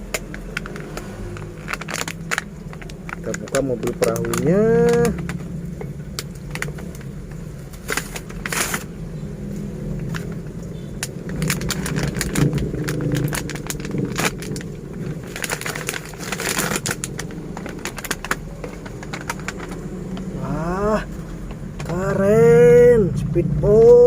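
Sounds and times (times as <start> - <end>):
toy packaging being opened: 0.2 - 5.4, 7.7 - 8.9, 11.0 - 20.3.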